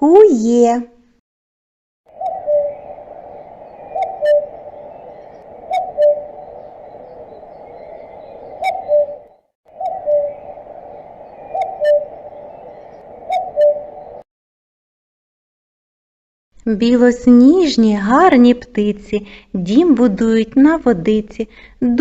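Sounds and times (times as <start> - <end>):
cuckoo calling: 2.1 - 14.2.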